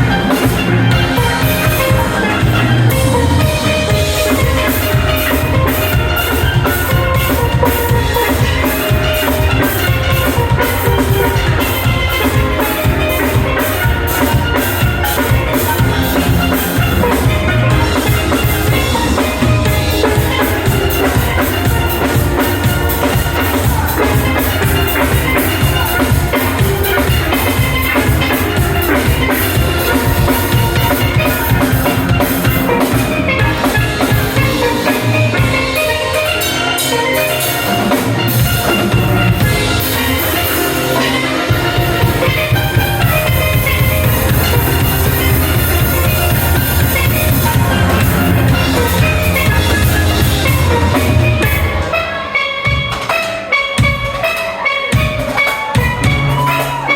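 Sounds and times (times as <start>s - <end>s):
drum kit: 0.0s - 56.9s
steel pan notes: 0.0s - 56.9s
bass pans: 41.6s - 51.9s.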